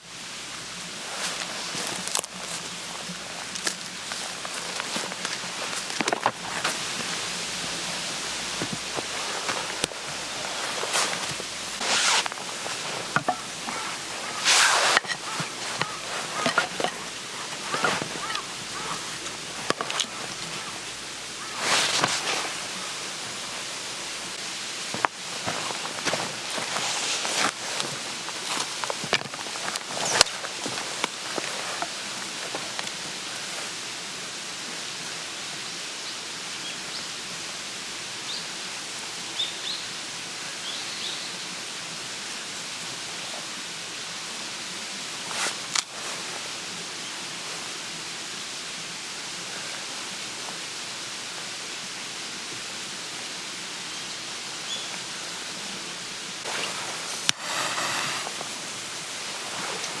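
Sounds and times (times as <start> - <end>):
water hissing: 0.1 - 34.0, 56.4 - 60.0
knocks and rustles: 1.4 - 20.8.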